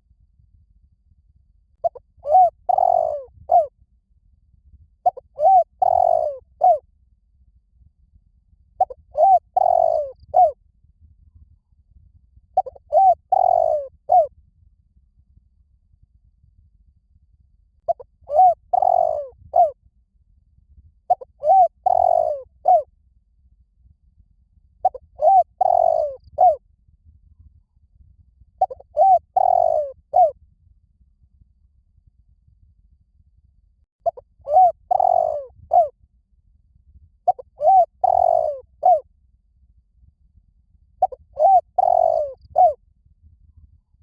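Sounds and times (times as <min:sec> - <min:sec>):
dove cooing: 0:01.8 - 0:03.7, 0:05.0 - 0:06.8, 0:08.8 - 0:10.6, 0:12.6 - 0:14.3, 0:17.9 - 0:19.8, 0:21.1 - 0:22.8, 0:24.8 - 0:26.6, 0:28.6 - 0:30.3, 0:34.1 - 0:35.9, 0:37.3 - 0:39.0, 0:41.0 - 0:42.8.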